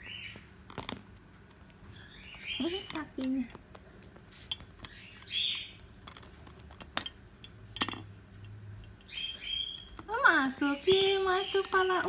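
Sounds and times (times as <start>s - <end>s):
cockatiel chirping: 1.9s - 2.9s, 4.9s - 5.8s, 9.1s - 10.0s.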